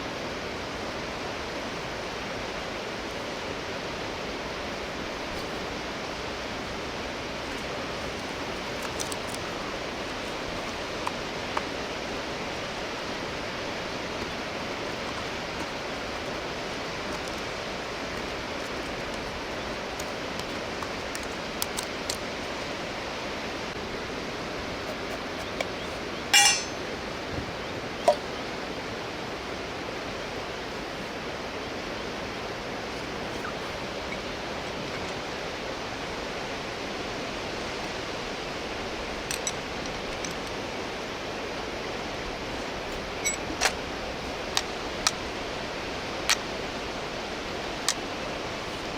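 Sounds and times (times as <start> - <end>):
river water flowing: 0.0 - 48.9
rattling clink: 26.4 - 26.8.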